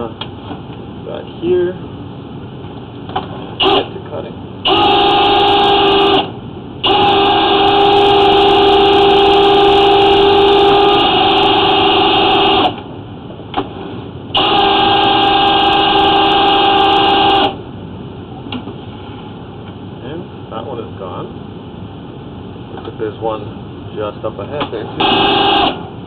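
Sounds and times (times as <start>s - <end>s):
drain cleaning machine whine: 4.7s - 12.8s, 14.3s - 17.6s, 25.0s - 25.9s.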